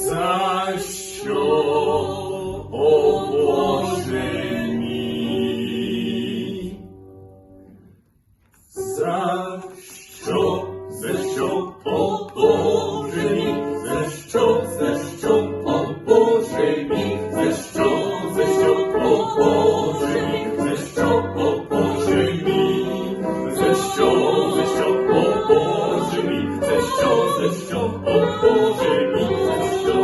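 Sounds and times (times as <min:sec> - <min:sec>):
voices singing in ensemble: 0:00.0 - 0:06.9, 0:08.7 - 0:30.0.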